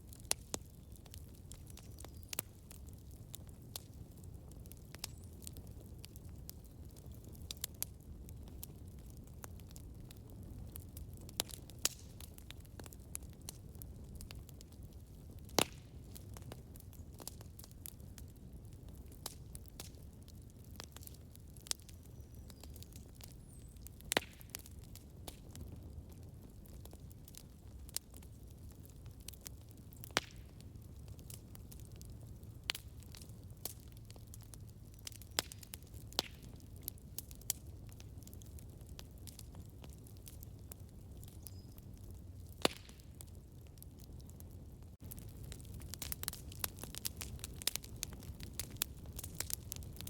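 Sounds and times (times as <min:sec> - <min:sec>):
campfire rumble: 0:00.0 - 0:50.0
fire crackles and pops: 0:00.0 - 0:50.0.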